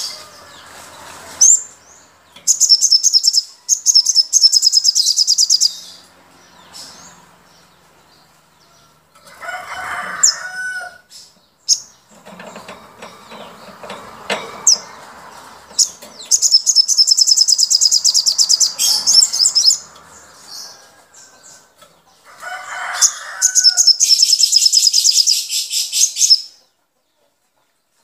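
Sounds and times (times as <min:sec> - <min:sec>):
songbird chirps: 0:00.0 - 0:28.0
high-pitched bird trills: 0:02.4 - 0:06.0, 0:15.8 - 0:19.8, 0:22.9 - 0:26.6.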